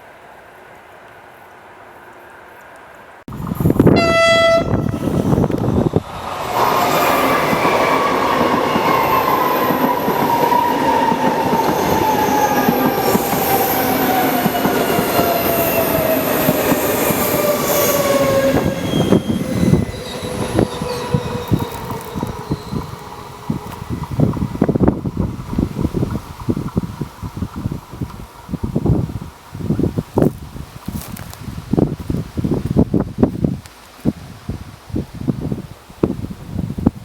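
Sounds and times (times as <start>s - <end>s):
electric train passing: 0.3s - 29.8s
train horn blast: 3.8s - 5.3s
running gear whine: 4.6s - 25.0s.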